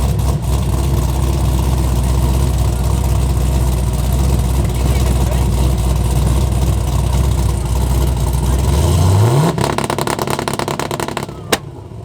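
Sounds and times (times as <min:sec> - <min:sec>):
car engine revving: 0:00.0 - 0:11.8
sharp crack: 0:09.3 - 0:11.8.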